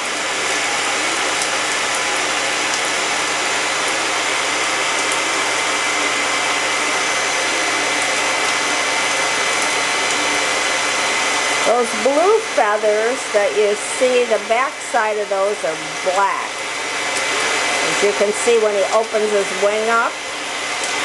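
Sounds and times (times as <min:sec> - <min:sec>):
shower spray into bathtub: 0:00.0 - 0:21.0.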